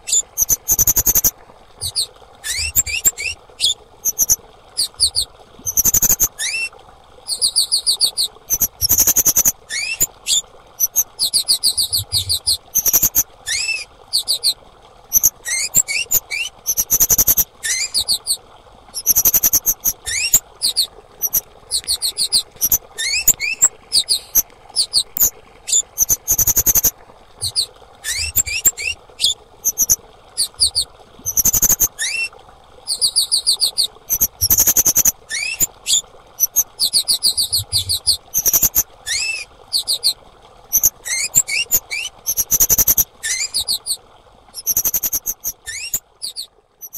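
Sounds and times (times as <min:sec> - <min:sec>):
insect high rapid chirps: 0:00.1 - 0:02.0, 0:02.6 - 0:06.3, 0:07.3 - 0:10.1, 0:10.8 - 0:13.2, 0:15.1 - 0:18.3, 0:19.0 - 0:28.9, 0:29.6 - 0:30.0, 0:30.6 - 0:31.9, 0:34.1 - 0:35.1, 0:37.7 - 0:39.2, 0:42.3 - 0:43.7, 0:44.6 - 0:46.9.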